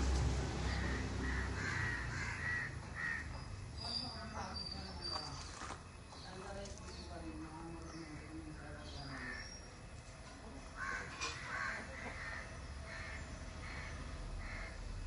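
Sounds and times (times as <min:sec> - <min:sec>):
bird cawing: 0:00.6 - 0:03.5, 0:09.1 - 0:09.6, 0:10.8 - 0:15.0.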